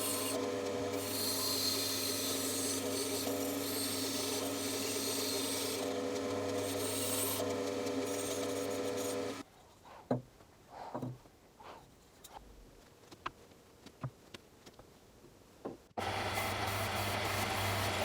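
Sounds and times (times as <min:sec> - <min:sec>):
bandsaw cutting wood: 0:00.0 - 0:09.4, 0:16.0 - 0:18.0.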